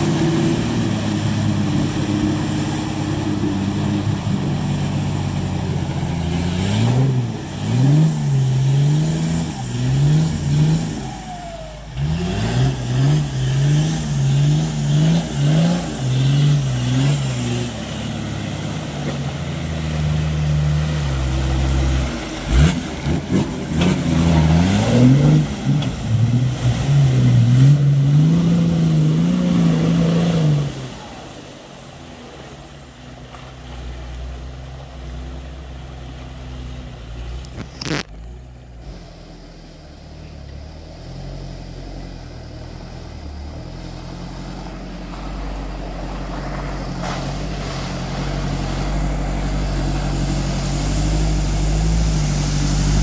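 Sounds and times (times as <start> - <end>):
engine revving in bursts: 11.9 - 17.8.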